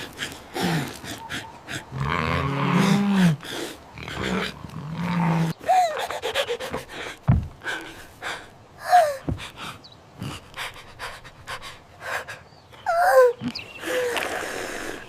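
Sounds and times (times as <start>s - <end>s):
cartoon character panting: 5.6s - 7.2s
deep thumps: 7.2s - 7.6s.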